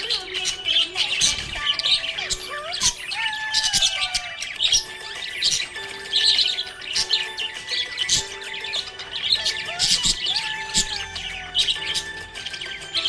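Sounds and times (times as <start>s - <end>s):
budgerigar chirping and warbling: 0.0s - 13.0s.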